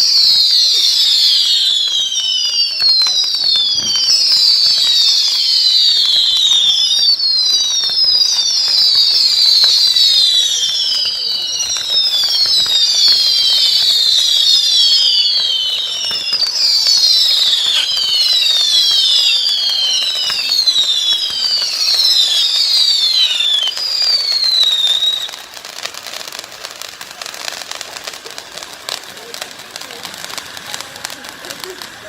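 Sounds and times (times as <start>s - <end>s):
fireworks crackling: 0.0s - 32.0s
shrill firework whistles: 0.0s - 32.0s.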